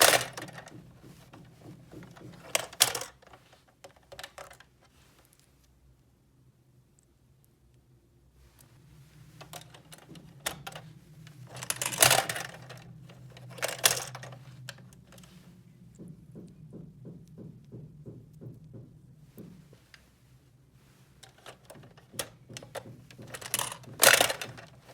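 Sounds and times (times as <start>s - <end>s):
plastic toy parts clicking: 0.0s - 0.8s, 1.9s - 4.7s, 9.4s - 10.8s, 11.4s - 15.3s, 21.2s - 24.9s
plastic parts clattering: 0.0s - 4.7s, 9.4s - 15.3s, 21.2s - 24.9s.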